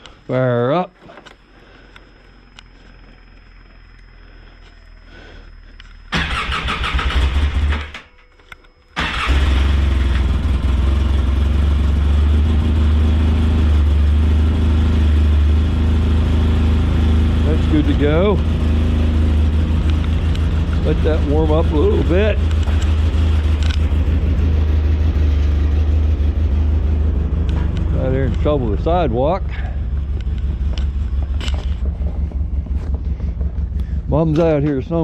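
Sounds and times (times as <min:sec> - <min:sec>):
engine cold starting: 0:06.1 - 0:08.1, 0:09.0 - 0:10.4.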